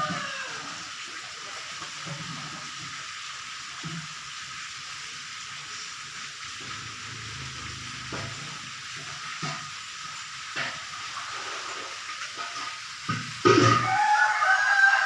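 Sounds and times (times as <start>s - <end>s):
rooster crowing: 0.0s - 0.9s, 13.6s - 15.0s.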